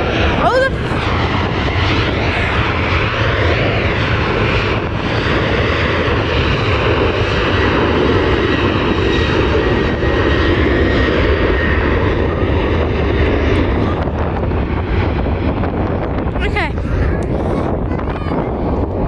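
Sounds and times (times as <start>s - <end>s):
aircraft engines running: 0.0s - 19.0s.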